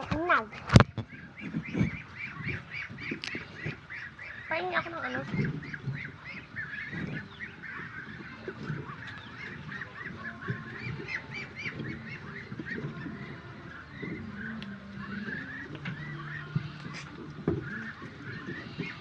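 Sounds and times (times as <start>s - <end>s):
birds chirping together: 0.1s - 19.0s.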